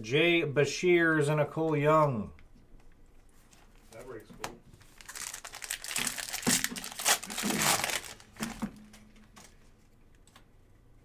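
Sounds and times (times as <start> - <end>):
wrappers torn and crinkled: 4.8 - 8.6.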